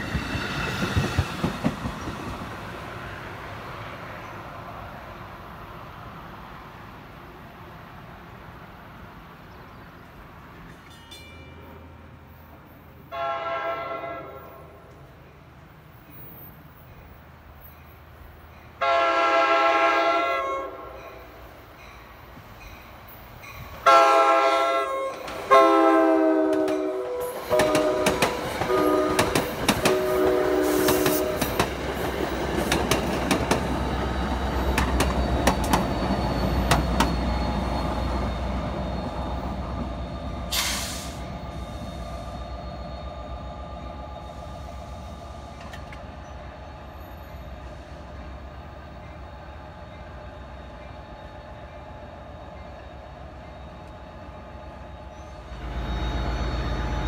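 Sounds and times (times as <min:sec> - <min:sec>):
train rumbling past: 0:00.0 - 0:57.0
train horn blasts: 0:13.1 - 0:15.0, 0:18.8 - 0:21.2, 0:23.8 - 0:31.6, 0:55.4 - 0:57.0
brief air hiss: 0:40.5 - 0:41.3.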